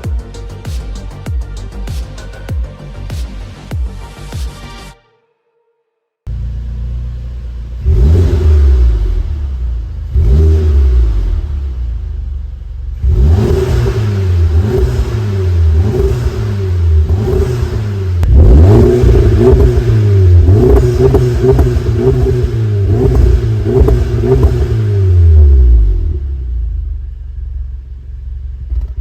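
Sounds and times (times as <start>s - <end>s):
car engine accelerating hard: 6.3s - 27.0s.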